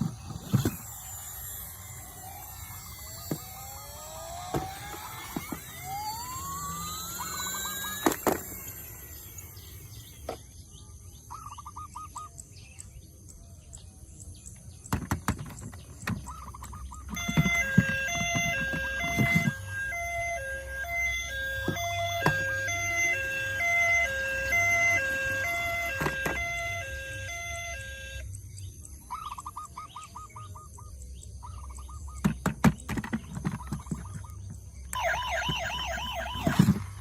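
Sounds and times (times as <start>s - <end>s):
toy siren whoops and trills: 0.0s - 10.3s, 16.1s - 28.4s, 33.4s - 37.0s
two-tone electronic siren: 0.0s - 10.4s, 16.0s - 28.4s, 34.9s - 37.0s.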